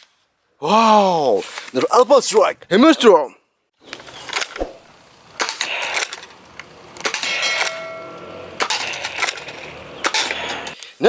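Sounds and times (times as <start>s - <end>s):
metallic clang: 7.1s - 10.8s.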